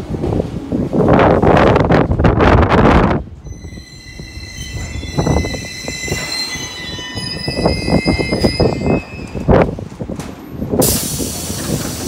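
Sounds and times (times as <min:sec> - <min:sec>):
low train rumble: 0:00.0 - 0:12.0
train brakes squealing: 0:03.4 - 0:09.7.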